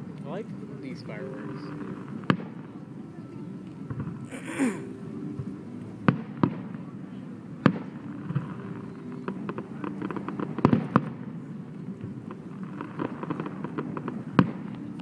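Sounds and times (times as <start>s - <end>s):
fast crackling of fireworks: 0.9s - 2.7s, 6.0s - 15.0s.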